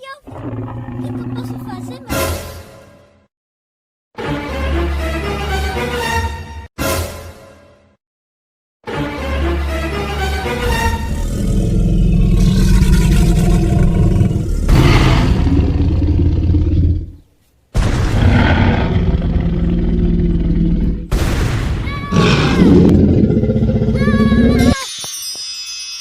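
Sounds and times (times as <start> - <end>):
dinosaur roar with deep rumbling: 0.3 - 1.8, 10.8 - 17.2, 18.1 - 21.1, 22.1 - 24.8.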